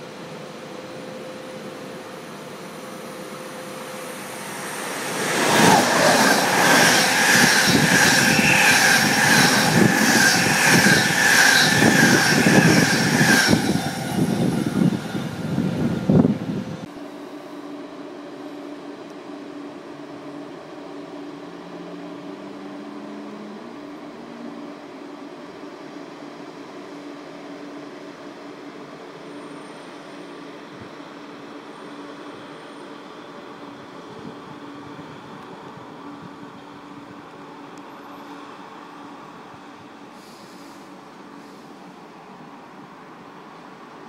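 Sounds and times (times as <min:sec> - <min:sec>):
steady high whine: 0:00.0 - 0:44.0
train humming slowly: 0:00.0 - 0:44.0
train rushing past: 0:02.5 - 0:16.9.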